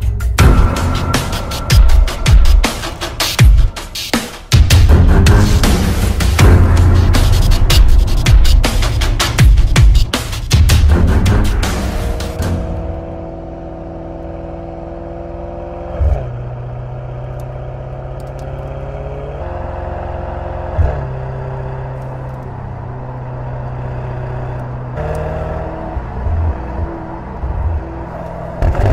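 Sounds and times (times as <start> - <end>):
car engine running: 0.0 - 28.9
exhaust crack at gear change: 26.2 - 28.9.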